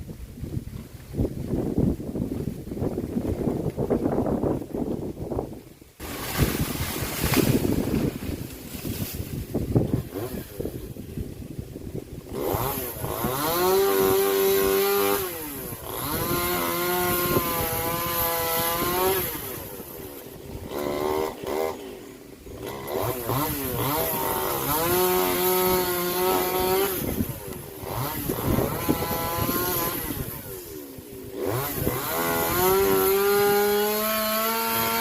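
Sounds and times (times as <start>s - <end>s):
wind buffeting microphone: 0.0s - 21.6s, 22.4s - 35.0s
chainsaw cutting tree: 6.0s - 35.0s.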